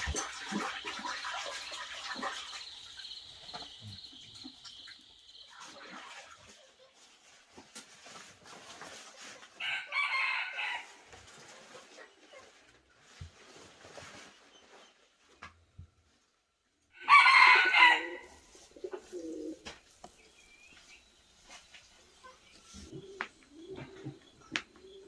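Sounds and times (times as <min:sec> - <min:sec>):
chickens clucking: 0:00.0 - 0:09.6, 0:11.2 - 0:13.6, 0:17.0 - 0:25.0
rooster crowing: 0:09.6 - 0:11.0, 0:17.0 - 0:18.4.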